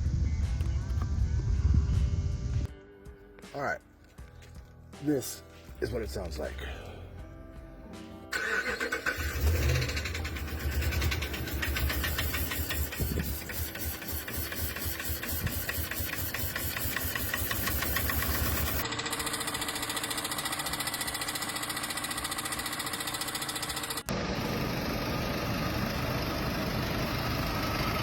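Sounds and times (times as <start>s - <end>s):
faint steady engine whine: 8.3s - 28.0s
car engine with rapid tapping: 9.0s - 28.0s.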